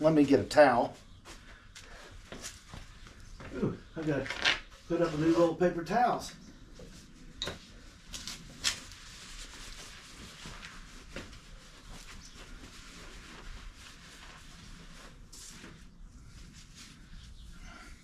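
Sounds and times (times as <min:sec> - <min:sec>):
rustling: 0:06.8 - 0:17.8.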